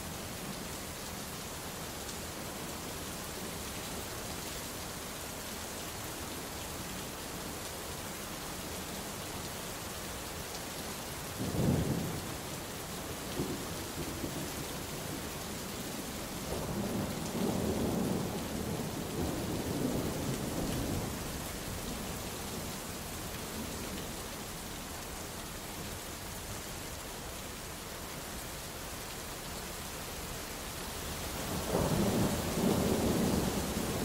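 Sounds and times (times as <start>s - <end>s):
heavy rain falling: 0.0s - 34.0s
thunder rumbling: 31.5s - 34.0s.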